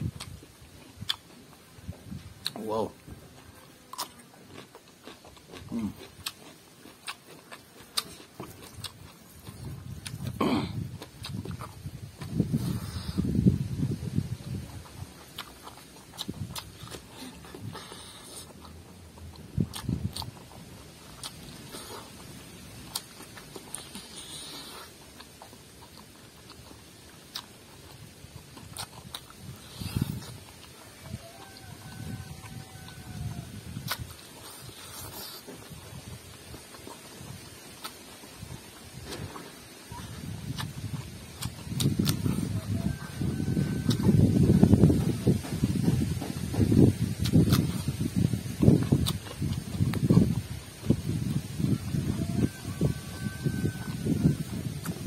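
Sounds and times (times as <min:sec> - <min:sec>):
chewing and biting food: 0:00.0 - 0:55.0
wet mouth clicks and smacks: 0:33.8 - 0:35.8, 0:40.0 - 0:42.6, 0:47.2 - 0:51.5.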